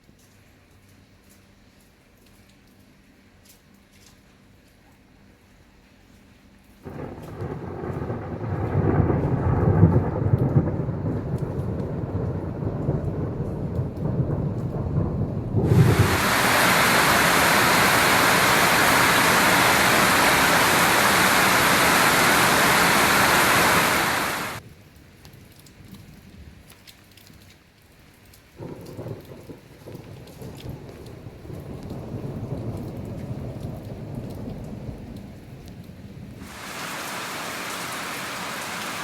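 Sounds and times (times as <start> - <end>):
heavy rain rushing: 6.8 - 24.6, 36.2 - 39.0
thunder rumbling: 6.9 - 24.6, 28.6 - 39.0.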